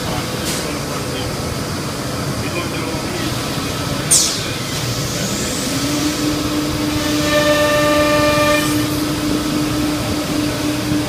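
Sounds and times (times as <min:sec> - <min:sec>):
higher whine: 0:03.6 - 0:11.0.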